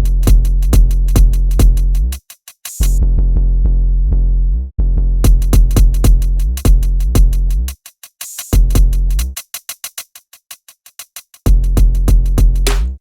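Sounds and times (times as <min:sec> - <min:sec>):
kick drum: 0:00.0 - 0:02.0, 0:05.2 - 0:07.6, 0:08.6 - 0:09.1, 0:11.5 - 0:13.0
fast hi-hat pattern: 0:00.0 - 0:03.0, 0:05.3 - 0:13.0
held bass: 0:03.0 - 0:05.5, 0:11.5 - 0:13.0.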